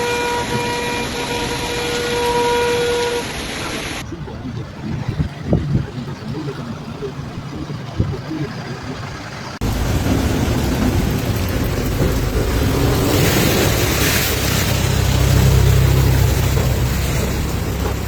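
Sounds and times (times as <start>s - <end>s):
heavy rain pouring: 0.0s - 18.0s
deep rumble: 9.6s - 18.0s.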